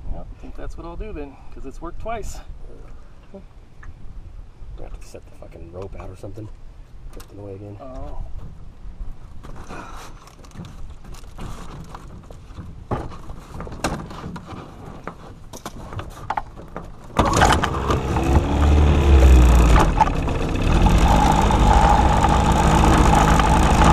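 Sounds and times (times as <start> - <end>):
gear knocking and clicking: 16.4 - 23.9
boat motor running: 17.2 - 23.9.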